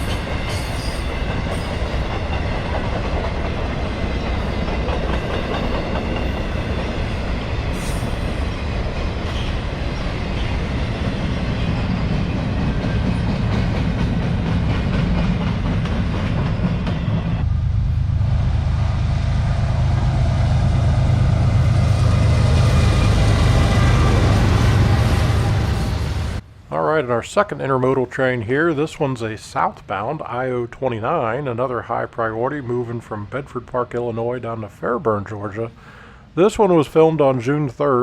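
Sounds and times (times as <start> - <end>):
train wheels clacking over rails: 0.0 - 17.4.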